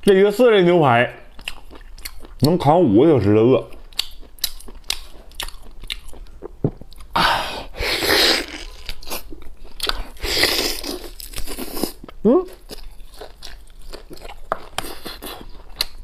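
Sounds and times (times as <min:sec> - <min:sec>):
wet chewing and biting: 0:01.3 - 0:02.6, 0:03.6 - 0:07.2, 0:08.0 - 0:16.0
mouth clicks and smacks: 0:03.7 - 0:07.2.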